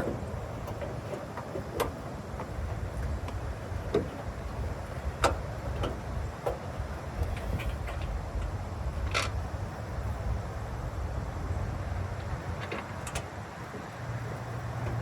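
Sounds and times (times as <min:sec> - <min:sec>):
car parts clicking and tapping: 0:00.0 - 0:09.4, 0:12.2 - 0:14.0
low steady rumble: 0:00.0 - 0:15.0.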